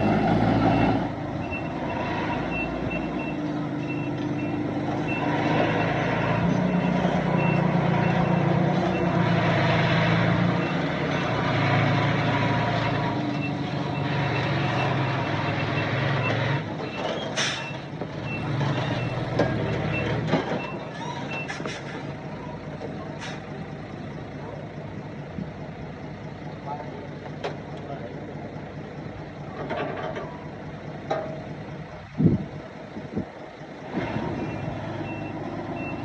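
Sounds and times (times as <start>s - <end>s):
loud diesel engine: 0.0s - 36.0s
reversing alarm beeping: 0.6s - 9.1s, 34.4s - 36.0s.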